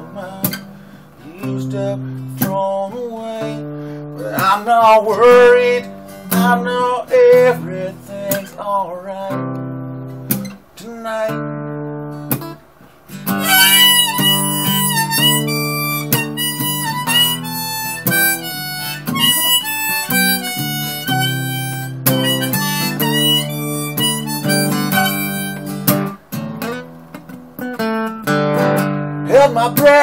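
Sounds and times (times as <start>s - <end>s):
strummed acoustic guitar: 0.0s - 30.0s
harmonica wailing melody: 13.2s - 26.2s.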